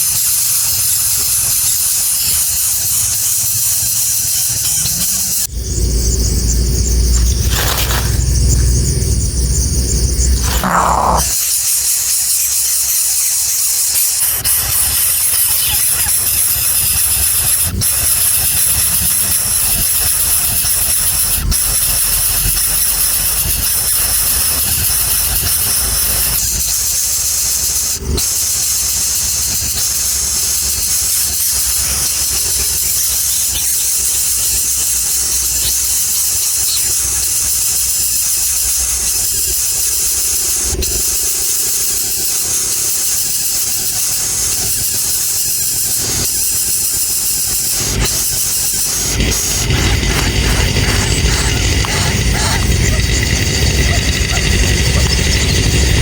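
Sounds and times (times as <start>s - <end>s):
high-pitched hissing drone: 3.9s - 11.5s, 42.0s - 56.0s.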